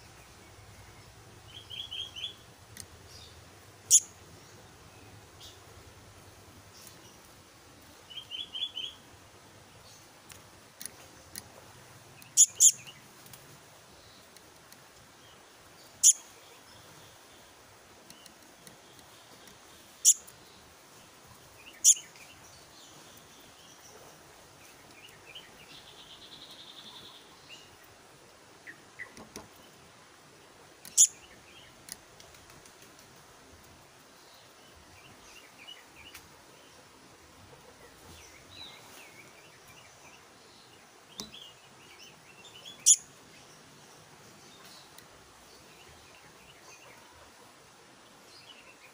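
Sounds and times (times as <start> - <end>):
bird chirps and sharp calls: 3.1 - 4.2, 12.2 - 13.0, 15.8 - 16.4, 21.6 - 24.0, 30.8 - 31.8, 41.1 - 43.7
buzzy bird trill: 12.3 - 12.9, 21.7 - 22.1.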